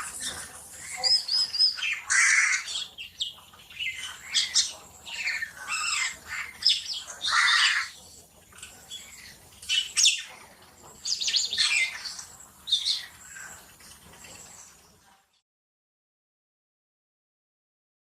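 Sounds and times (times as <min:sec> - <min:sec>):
myna chirping and squawking: 0:00.0 - 0:13.7.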